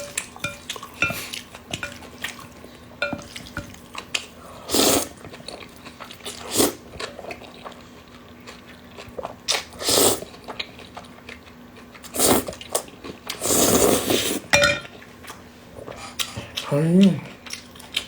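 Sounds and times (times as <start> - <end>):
mouth clicks and chewing: 16.2 - 18.0.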